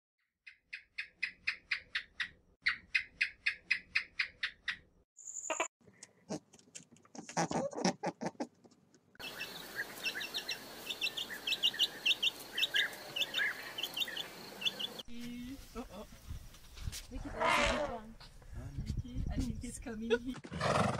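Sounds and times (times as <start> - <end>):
chicks peeping: 9.2 - 15.0.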